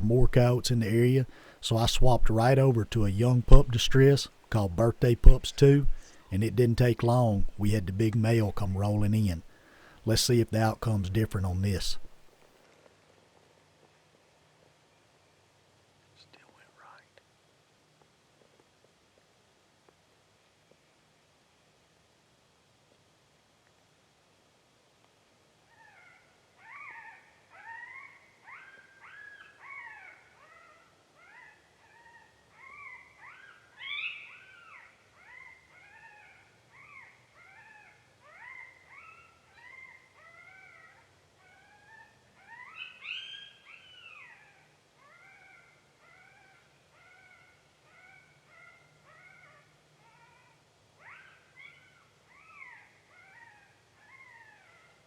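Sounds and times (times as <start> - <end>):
coyote pup whimpering yelps: 25.7 - 55.0.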